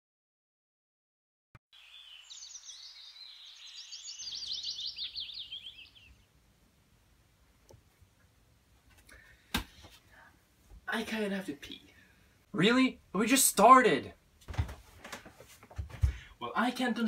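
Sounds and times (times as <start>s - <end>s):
songbird twittering: 1.8s - 6.3s.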